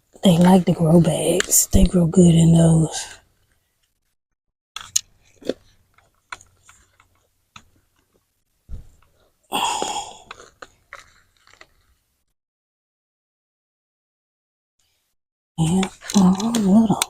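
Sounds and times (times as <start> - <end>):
dull thump: 8.7 - 9.0.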